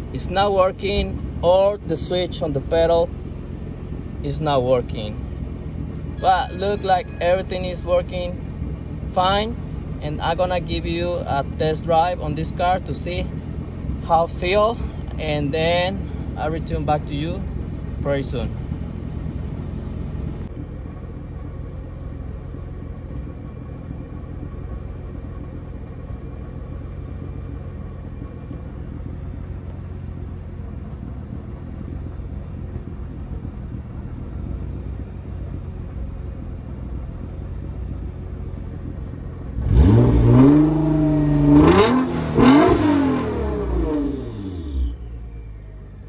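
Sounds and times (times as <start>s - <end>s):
car engine idling and revving: 0.0s - 46.0s.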